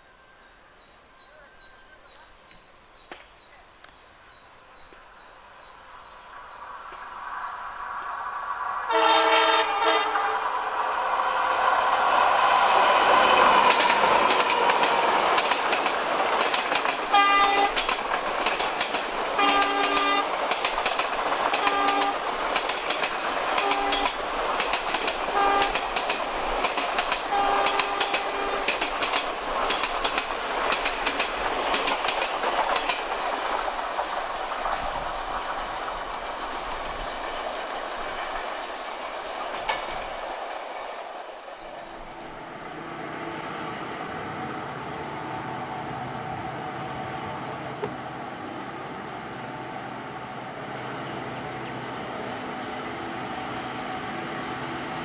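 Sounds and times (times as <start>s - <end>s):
diesel locomotive engine passing: 3.8s - 55.0s
train horn: 8.9s - 12.0s, 17.1s - 17.8s, 19.4s - 20.4s, 21.5s - 22.2s, 23.6s - 24.2s, 25.3s - 25.8s, 27.2s - 28.8s
train wheels clattering over rail joints: 12.0s - 41.2s.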